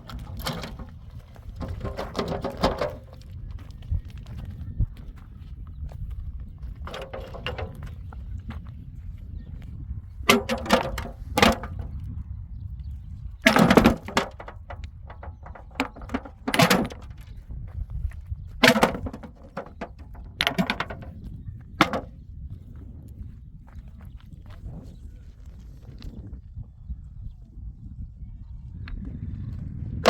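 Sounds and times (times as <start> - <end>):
clattering knocks: 0.0 - 1.0, 1.6 - 3.1, 6.9 - 7.9, 10.3 - 12.0, 13.4 - 17.3, 18.6 - 21.2, 21.8 - 22.1.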